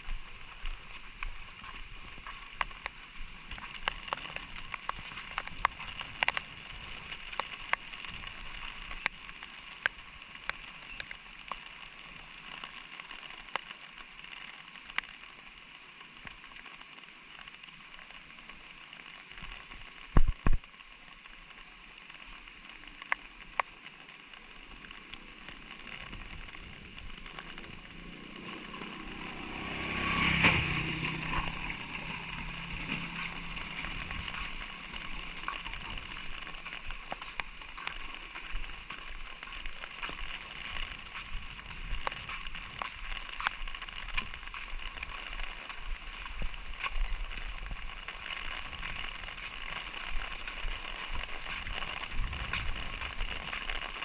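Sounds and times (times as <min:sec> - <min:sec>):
light rain falling: 0:00.0 - 0:54.0
motor vehicle passing: 0:25.3 - 0:36.7.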